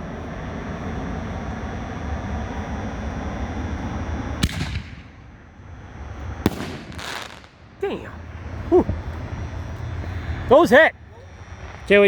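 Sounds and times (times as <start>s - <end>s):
firework bang: 4.4s - 5.2s, 6.4s - 7.8s.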